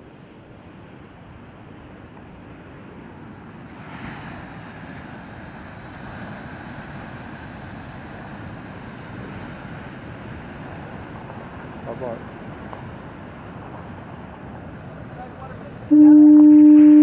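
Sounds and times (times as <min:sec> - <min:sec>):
heavy ocean surf: 0:00.0 - 0:17.0
wind: 0:00.0 - 0:17.0
wave breaking: 0:03.7 - 0:17.0.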